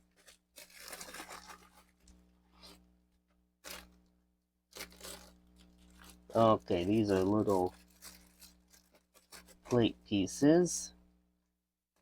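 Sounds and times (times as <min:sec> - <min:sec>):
plastic packaging rustling and tearing: 0:00.0 - 0:02.9, 0:03.6 - 0:04.1, 0:04.7 - 0:09.9.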